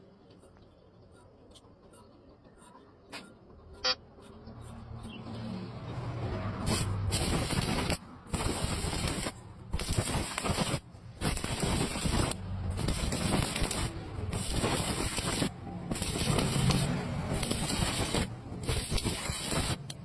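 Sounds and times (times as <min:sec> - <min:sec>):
arc welding crackling and hissing: 0:06.5 - 0:20.0.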